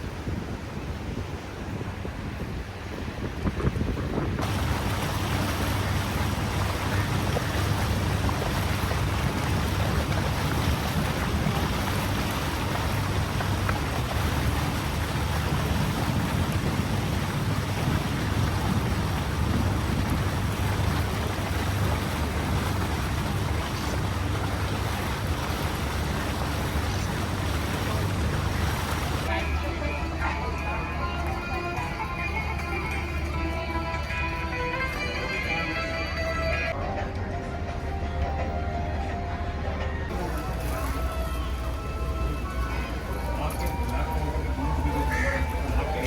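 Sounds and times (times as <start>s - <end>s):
steady rushing noise: 0.0s - 29.6s
low engine drone: 4.4s - 34.0s, 36.7s - 46.0s.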